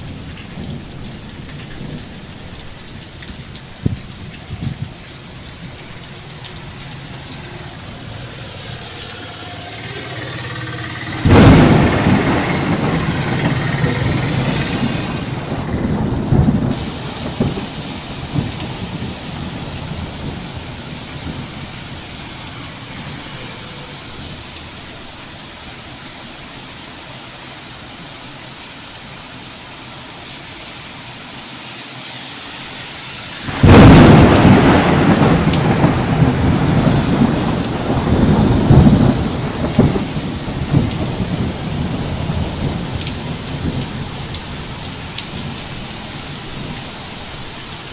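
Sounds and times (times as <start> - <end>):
thunder rolling: 0.0 - 24.6, 33.4 - 46.8
steady rain: 0.0 - 47.9
loud thunderclap: 9.9 - 22.2, 33.4 - 45.6.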